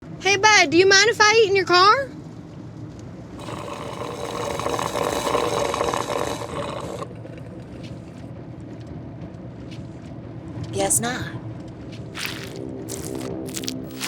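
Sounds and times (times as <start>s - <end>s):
wet slurping eating noise: 3.4s - 8.1s, 12.2s - 14.0s.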